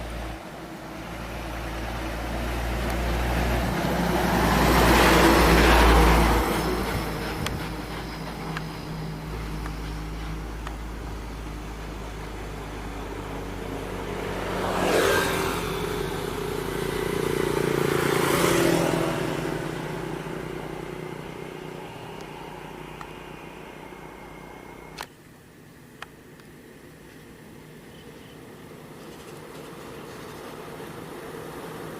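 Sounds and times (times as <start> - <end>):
vehicle driving past: 0.0 - 25.0
vehicle engines running: 0.0 - 25.1.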